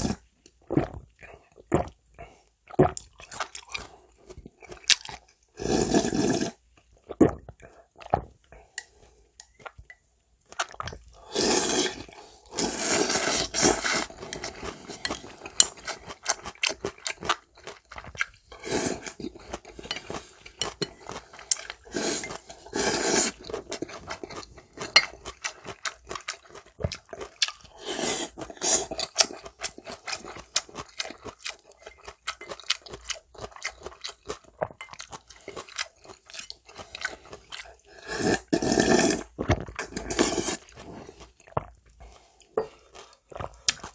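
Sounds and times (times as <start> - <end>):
slurping noodles: 0.0 - 0.2, 5.6 - 6.6, 11.1 - 16.9, 18.4 - 25.9, 27.2 - 31.2, 36.7 - 41.6.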